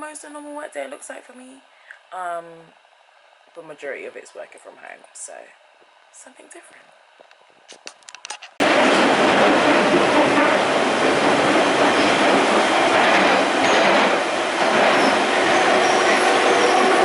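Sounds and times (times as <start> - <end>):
train wheels rumbling on track: 8.6 - 17.0.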